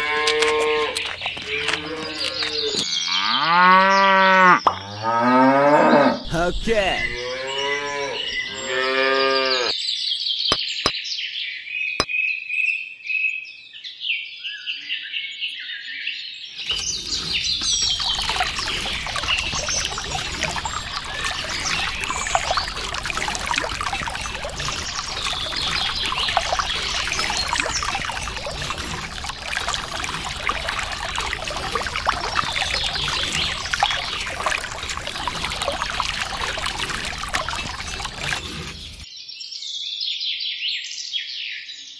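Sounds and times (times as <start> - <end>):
birds chirping: 0.0 - 9.7, 16.6 - 39.1
cow mooing: 1.6 - 6.3, 7.2 - 9.7
pouring water rushing: 6.3 - 7.2, 16.6 - 39.1.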